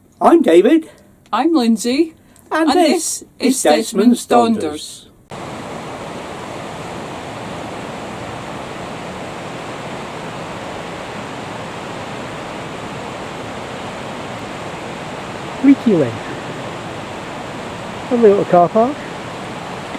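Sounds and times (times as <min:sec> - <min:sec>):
fast-flowing river water: 0:05.3 - 0:19.9.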